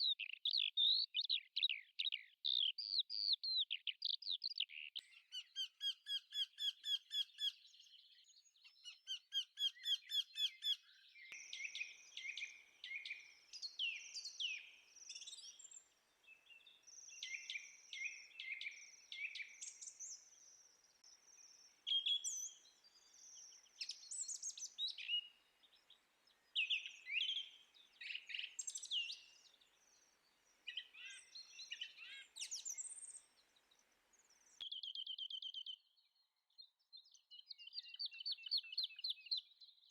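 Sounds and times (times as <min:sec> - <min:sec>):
birds chirping and singing: 0:00.0 - 0:33.4
faint hiss: 0:11.4 - 0:34.6.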